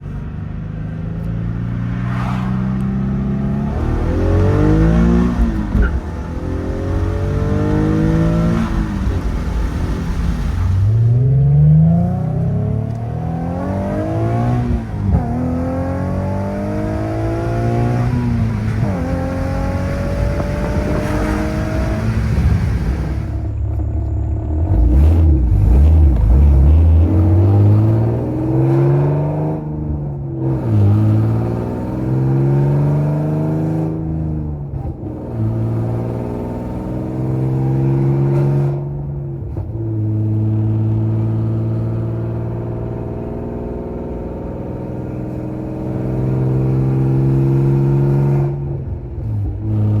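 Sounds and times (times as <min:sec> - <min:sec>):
car engine revving through gears: 0:00.8 - 0:50.0.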